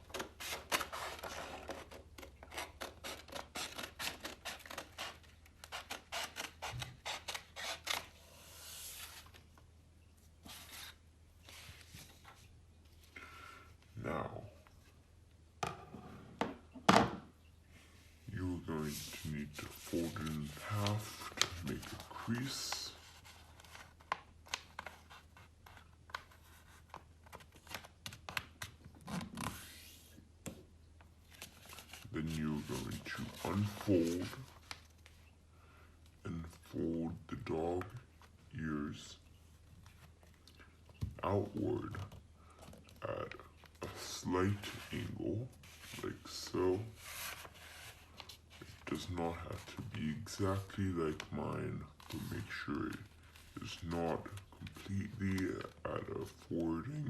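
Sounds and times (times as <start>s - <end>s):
scissors cutting paper: 0.2s - 8.1s
paper rustling: 18.8s - 30.0s, 31.3s - 35.3s, 43.6s - 56.6s.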